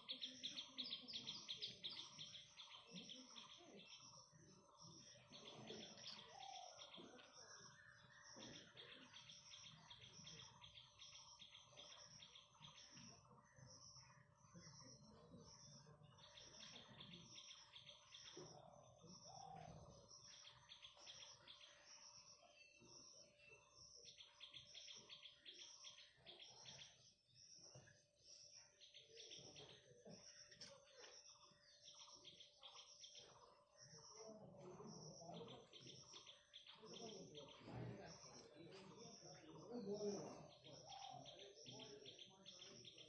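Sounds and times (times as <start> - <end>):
faint high insect hum: 0.0 - 27.6
bird chirping: 0.0 - 43.0.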